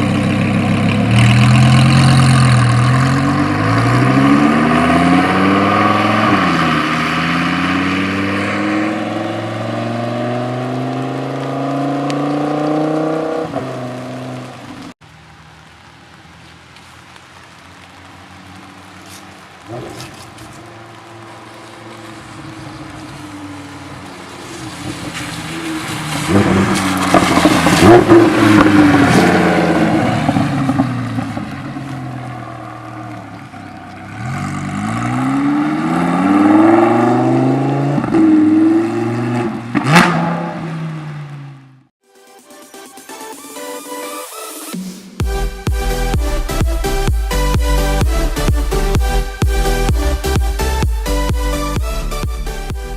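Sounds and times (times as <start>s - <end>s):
sports car accelerating: 0.0s - 15.0s, 17.3s - 41.9s
car passing by: 1.1s - 15.6s, 16.3s - 41.6s.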